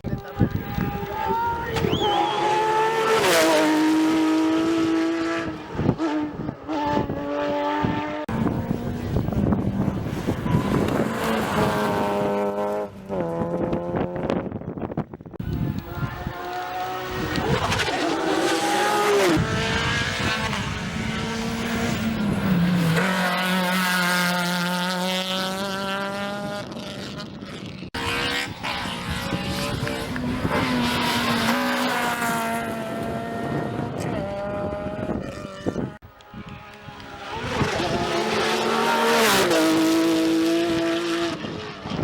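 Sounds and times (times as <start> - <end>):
rally car engine revving: 0.6 - 14.5, 15.5 - 42.0.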